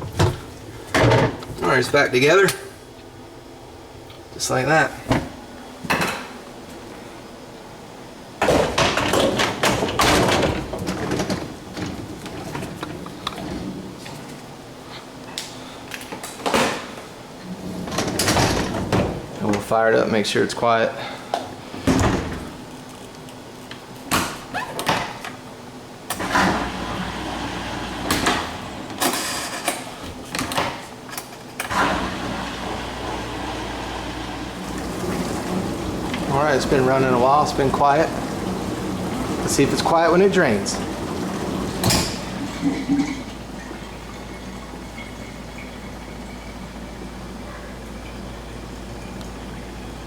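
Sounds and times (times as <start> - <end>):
dishwasher racks and door clunking: 0.0 - 2.6, 4.5 - 6.4, 8.4 - 14.5, 16.0 - 19.8, 21.8 - 22.6, 24.1 - 25.4, 26.1 - 48.6.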